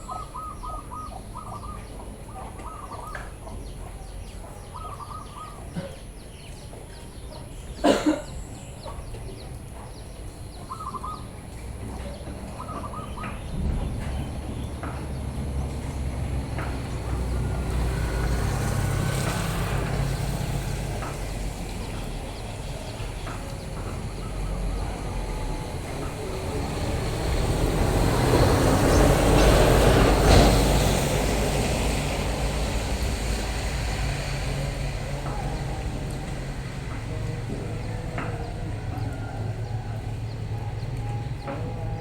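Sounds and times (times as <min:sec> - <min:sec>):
engine humming: 0:00.0 - 0:42.0
vehicle passing: 0:10.6 - 0:42.0.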